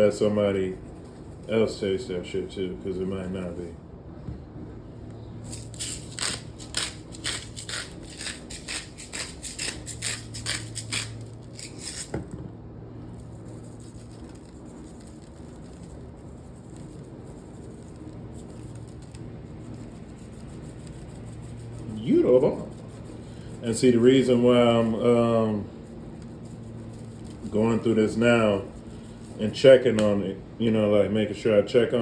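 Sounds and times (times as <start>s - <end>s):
seasoning shaker rasping: 0.0s - 3.7s, 5.4s - 12.4s, 13.1s - 30.1s.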